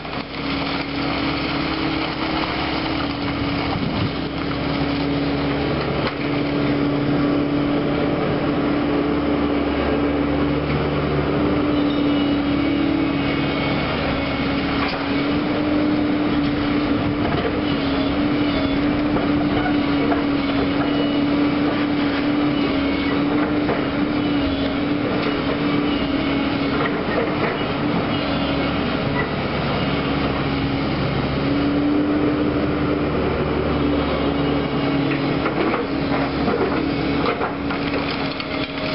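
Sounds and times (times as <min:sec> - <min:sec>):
diesel engine under load: 0:00.0 - 0:38.9.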